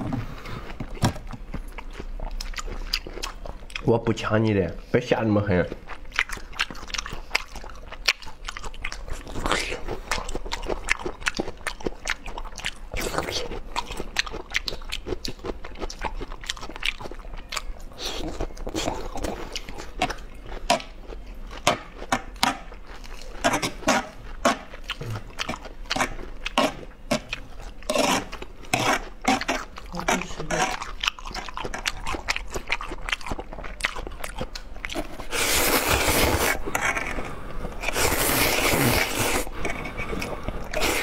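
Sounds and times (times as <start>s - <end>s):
person biting and chewing food: 0.0s - 3.9s, 5.7s - 41.0s.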